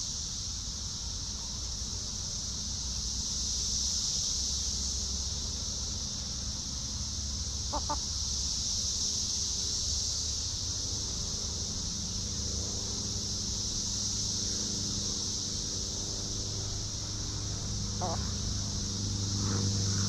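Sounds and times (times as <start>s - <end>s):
high insect buzz: 0.0s - 20.0s
chicken clucking: 7.7s - 8.0s, 18.0s - 18.2s.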